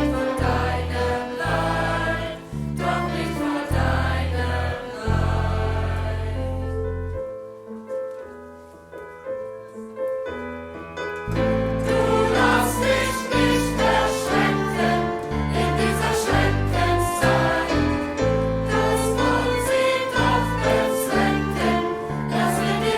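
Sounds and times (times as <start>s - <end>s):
choir singing: 0.0s - 6.8s, 11.5s - 22.9s.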